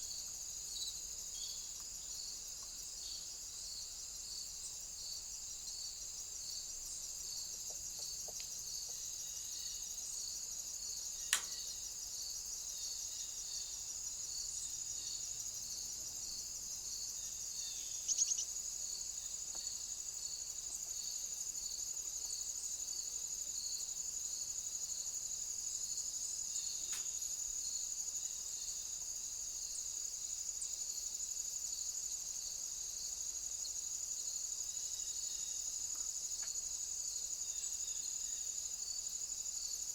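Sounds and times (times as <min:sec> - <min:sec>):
insects trilling: 0:00.0 - 0:39.9
pulsed insect chirp: 0:00.0 - 0:39.9
sharp click: 0:11.3 - 0:11.6.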